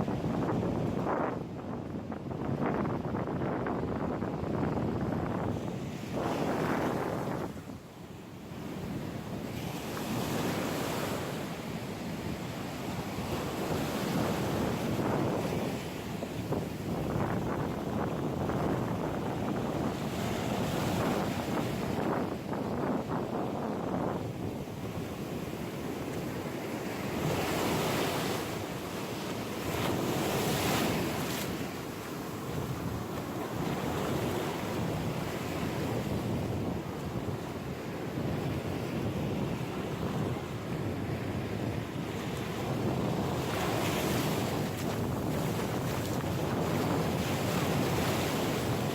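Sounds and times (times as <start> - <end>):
wind rumbling on microphone: 0.0 - 48.9
ocean surf breaking: 41.1 - 48.9.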